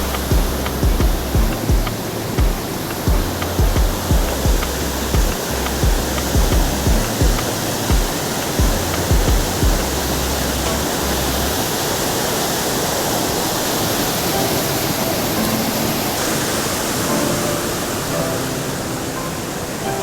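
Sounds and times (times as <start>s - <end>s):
low bumps: 0.0s - 11.6s
faint background music: 0.0s - 20.0s
water falling over rocks: 0.0s - 20.0s.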